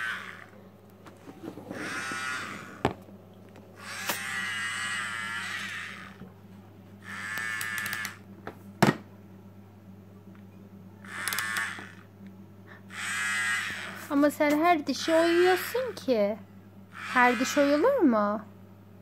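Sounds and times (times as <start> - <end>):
toy drill whirring: 0.0 - 0.5, 1.7 - 3.0, 3.8 - 6.2, 7.0 - 8.2, 11.0 - 12.1, 12.9 - 14.1, 15.0 - 16.0, 16.9 - 18.0.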